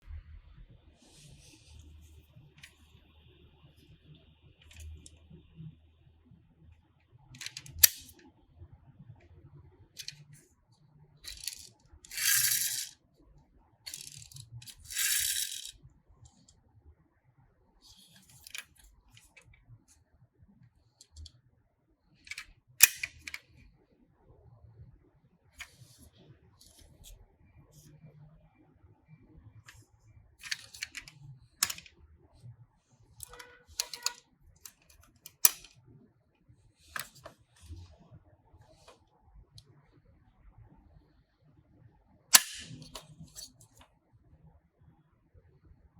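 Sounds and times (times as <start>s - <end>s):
toy cars clicking and clattering: 7.4s - 8.1s, 10.0s - 10.4s, 11.2s - 13.0s, 13.9s - 16.4s, 17.9s - 19.4s, 22.3s - 23.4s, 30.4s - 31.9s, 33.2s - 35.7s, 42.3s - 43.5s
small hard objects rattling: 13.9s - 15.7s.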